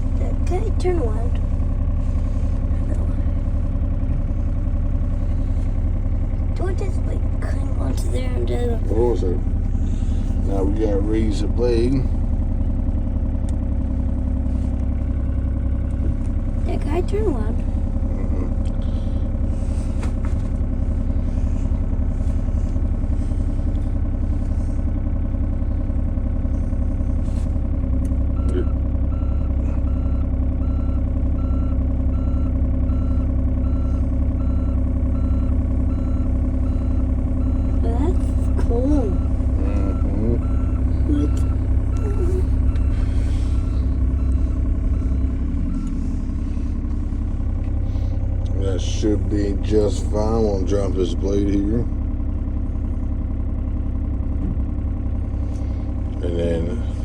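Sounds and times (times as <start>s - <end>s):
small diesel engine running: 0.0s - 57.0s
alarm beeping: 33.0s - 46.7s.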